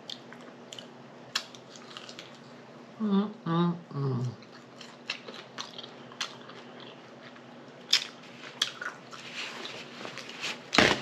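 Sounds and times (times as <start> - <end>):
person chewing crunchy food: 0.0 - 2.6, 4.3 - 10.8.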